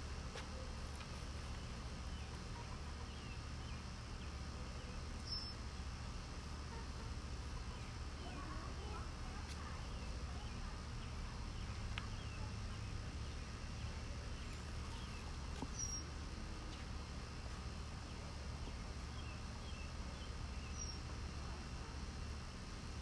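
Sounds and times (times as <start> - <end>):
small birds chirping: 0.2 - 16.9, 18.0 - 21.9.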